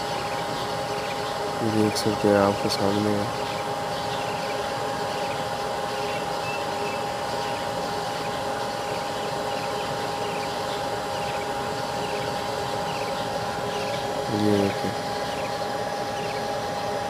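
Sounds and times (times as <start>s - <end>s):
refrigerator electrical hum: 0.0s - 17.0s.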